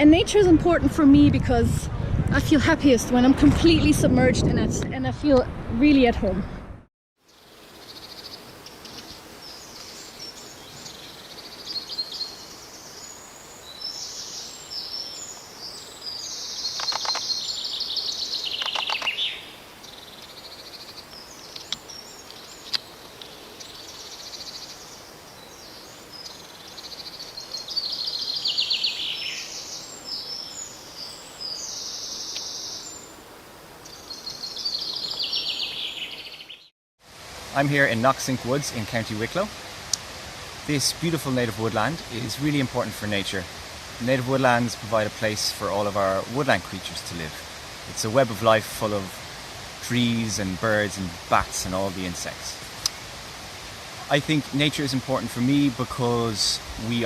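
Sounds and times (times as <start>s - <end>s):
songbirds singing: 7.2s - 36.7s
steady background hiss: 7.2s - 57.0s.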